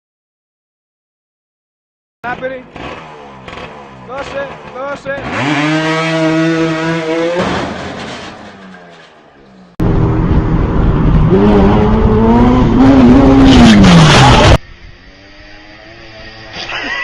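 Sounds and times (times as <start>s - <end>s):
vehicle engine: 2.2s - 17.0s
loud engine revving hard: 2.7s - 8.0s, 9.8s - 17.0s.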